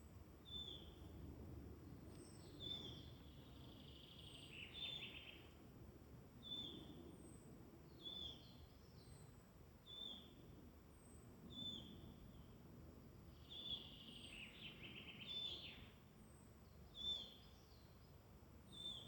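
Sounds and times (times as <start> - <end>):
songbird calling and warbling: 0.4 - 0.9, 2.2 - 5.5, 13.3 - 15.9, 16.9 - 18.0, 18.7 - 19.0.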